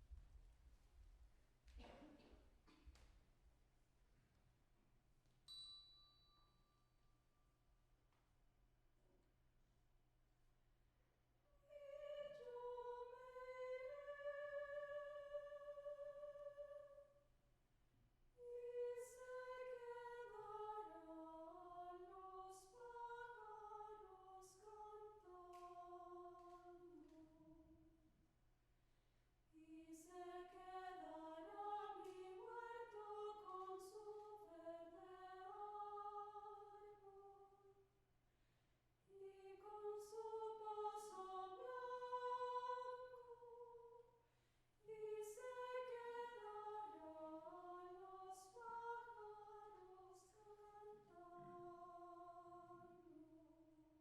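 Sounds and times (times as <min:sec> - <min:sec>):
vocal ensemble singing a cappella: 0:11.7 - 0:17.0, 0:18.4 - 0:27.6, 0:29.6 - 0:37.4, 0:39.1 - 0:44.0, 0:44.9 - 0:53.6.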